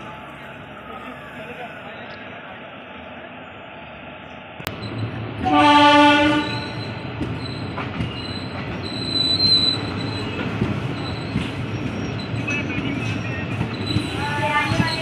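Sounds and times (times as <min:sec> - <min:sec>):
train coaches clattering: 0:04.7 - 0:15.0
train horn blast: 0:05.4 - 0:06.8
wheel squeal: 0:06.4 - 0:15.0.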